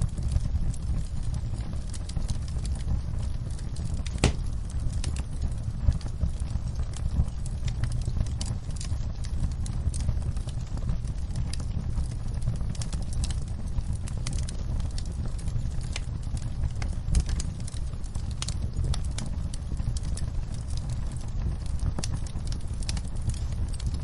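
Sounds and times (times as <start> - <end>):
fire crackling and snapping: 0.0 - 24.0
flames rumbling: 0.0 - 24.0
loud fire pop: 4.1 - 4.8.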